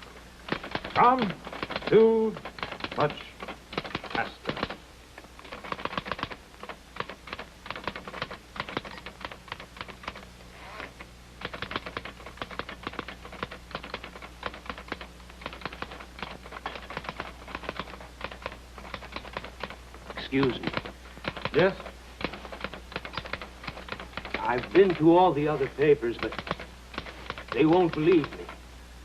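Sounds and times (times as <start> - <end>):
typewriter keys clattering: 0.0 - 10.3, 11.4 - 28.6.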